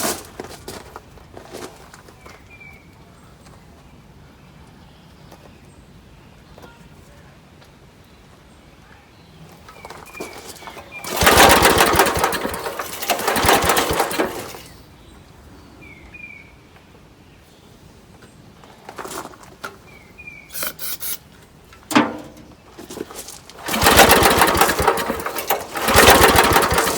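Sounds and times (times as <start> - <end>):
small gasoline engine starting: 10.2 - 14.9, 20.5 - 21.2, 23.5 - 26.9
engine sputtering: 10.5 - 14.8, 23.5 - 26.9.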